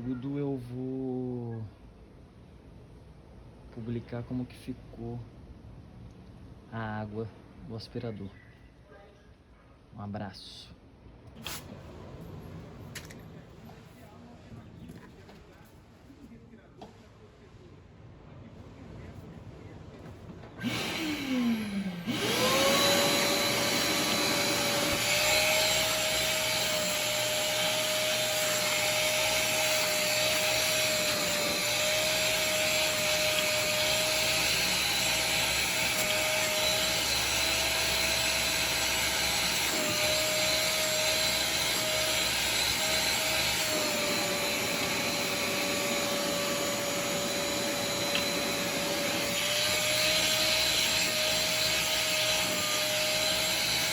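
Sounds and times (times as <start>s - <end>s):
vacuum cleaner motor whining: 20.6s - 53.9s.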